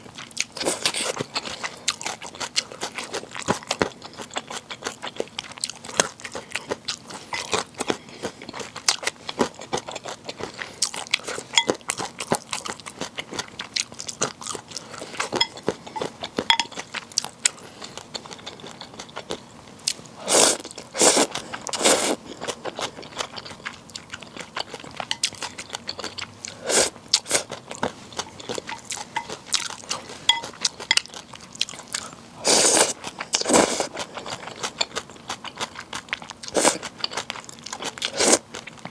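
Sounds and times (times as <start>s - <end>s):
person chewing noodles: 0.0s - 38.9s.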